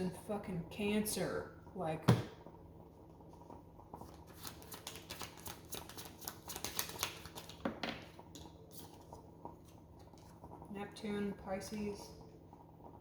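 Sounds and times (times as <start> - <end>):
cards being shuffled: 4.0 - 7.7.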